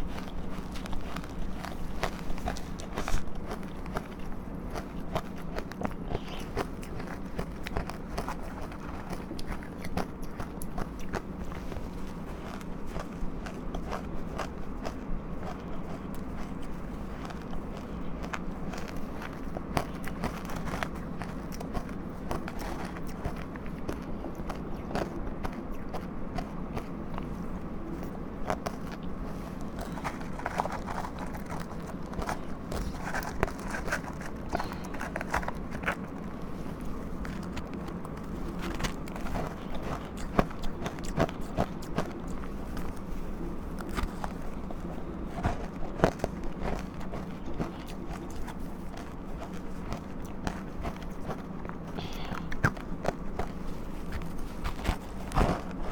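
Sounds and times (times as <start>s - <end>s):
chewing crunchy ice: 0.0s - 55.9s.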